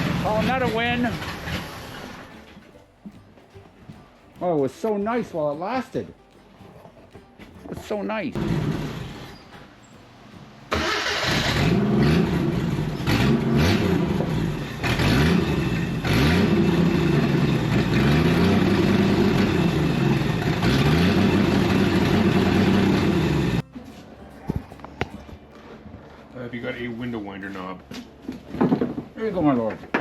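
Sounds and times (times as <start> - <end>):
car engine starting and revving: 0.0 - 2.6, 8.4 - 9.4, 10.7 - 23.6.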